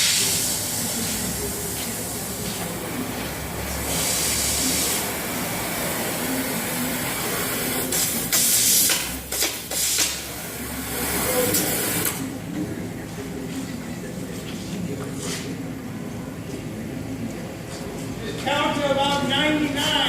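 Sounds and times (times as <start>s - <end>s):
propane gas hissing: 0.0s - 12.2s.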